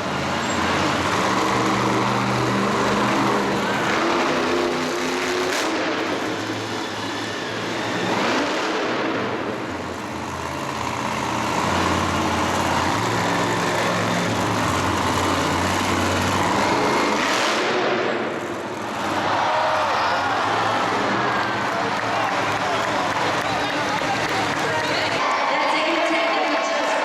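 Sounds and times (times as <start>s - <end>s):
vehicle engine revving: 0.0s - 25.2s.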